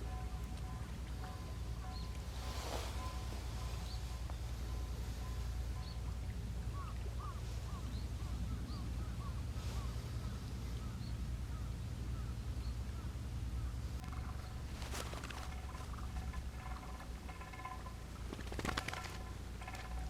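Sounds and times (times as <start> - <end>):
steady low rumble: 0.0 - 20.0
high peeps: 14.0 - 20.0.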